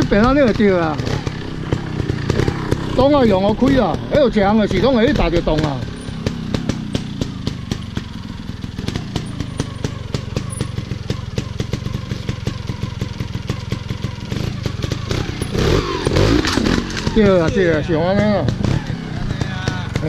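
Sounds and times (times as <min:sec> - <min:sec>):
motorcycle engine droning: 0:00.0 - 0:20.0
sharp engine pops: 0:15.4 - 0:17.2.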